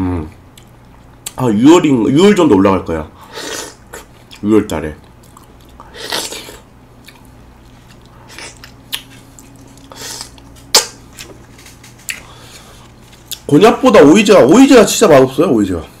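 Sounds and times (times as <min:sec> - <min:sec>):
wet chewing noises: 0:03.9 - 0:13.5.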